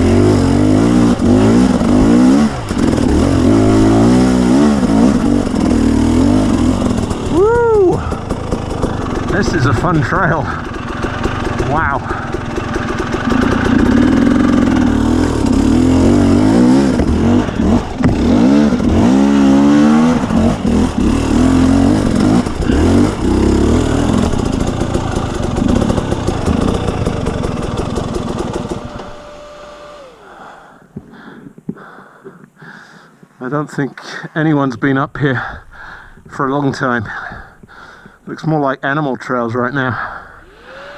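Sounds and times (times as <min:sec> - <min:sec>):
dirt bike engine revving: 0:00.0 - 0:30.6, 0:39.9 - 0:40.9
steady tone sliding down: 0:40.3 - 0:40.9.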